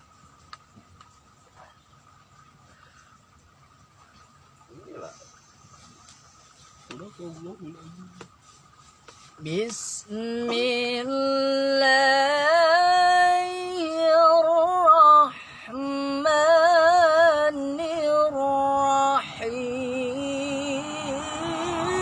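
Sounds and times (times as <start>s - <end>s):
person chanting melodically: 17.4s - 22.0s.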